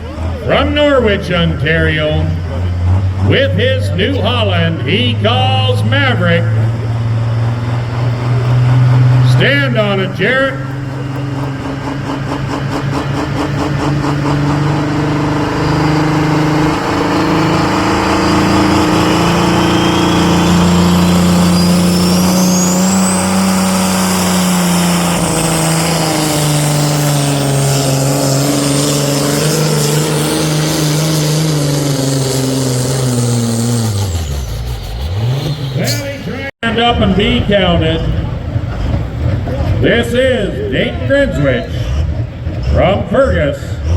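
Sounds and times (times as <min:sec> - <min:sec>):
tractor diesel engine at full throttle: 0:00.0 - 0:43.9
high whistle: 0:19.0 - 0:23.3.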